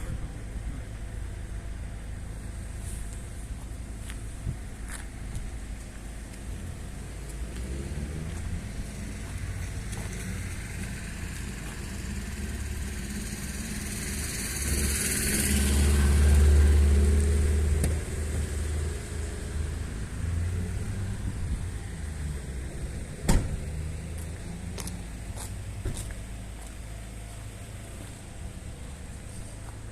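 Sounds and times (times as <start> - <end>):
vehicle engine humming: 0.0 - 29.9.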